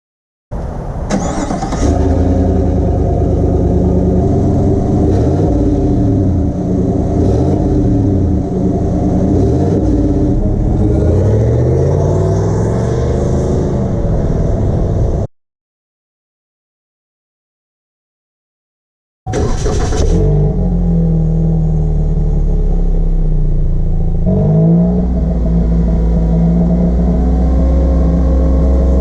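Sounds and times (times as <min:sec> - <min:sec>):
pickup truck engine starting and revving: 0:01.1 - 0:14.9, 0:19.3 - 0:29.0.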